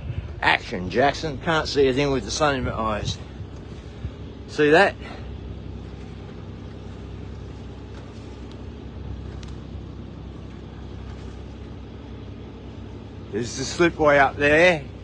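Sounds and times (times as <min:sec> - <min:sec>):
boat engine humming: 0:00.0 - 0:15.0
rushing water and air: 0:02.6 - 0:13.2.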